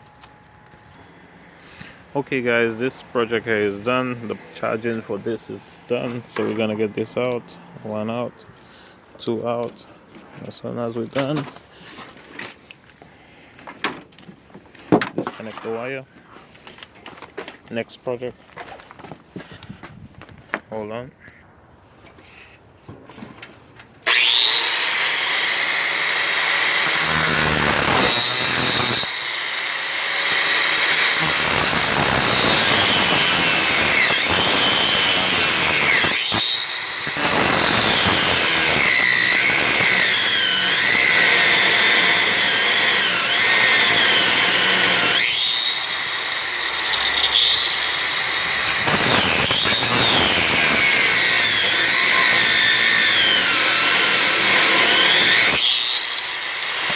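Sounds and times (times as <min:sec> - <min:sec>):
power tool cutting bolts: 0:24.0 - 0:56.9.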